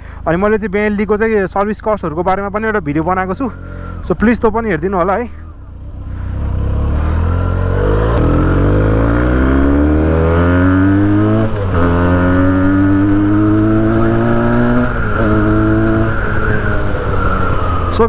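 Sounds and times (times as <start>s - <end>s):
motorcycle engine accelerating: 0.8s - 18.0s.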